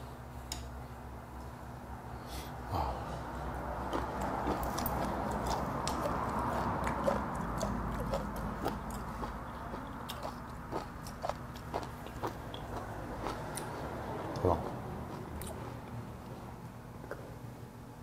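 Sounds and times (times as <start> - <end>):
low background hum: 0.0 - 18.0
close-up chewing food: 3.8 - 16.0.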